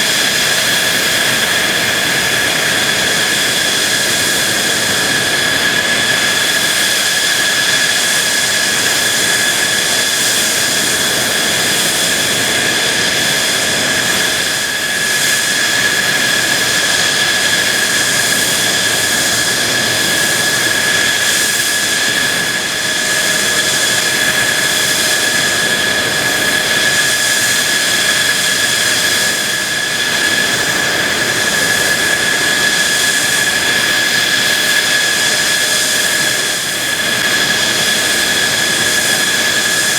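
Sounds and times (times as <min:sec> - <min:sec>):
jet engine running: 0:00.0 - 0:39.9.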